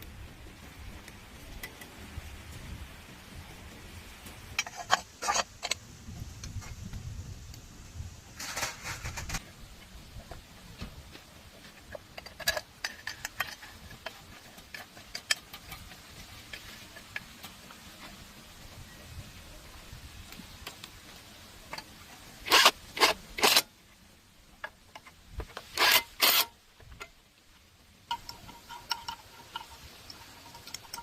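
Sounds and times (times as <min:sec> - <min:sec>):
metal tools clinking: 0:28.1 - 0:31.0.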